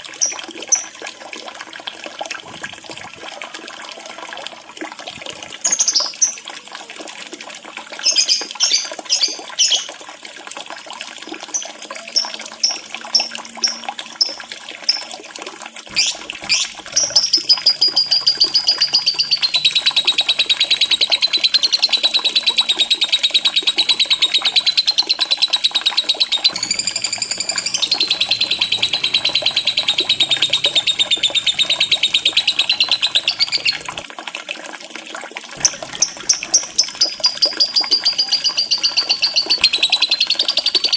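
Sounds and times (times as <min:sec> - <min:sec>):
running water: 0:00.0 - 0:40.9
lovebird chirping and trilling: 0:15.9 - 0:34.0, 0:35.6 - 0:40.9.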